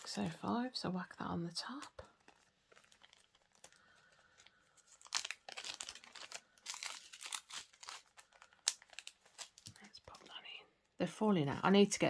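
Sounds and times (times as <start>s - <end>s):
plastic bags crinkling: 2.2s - 10.3s.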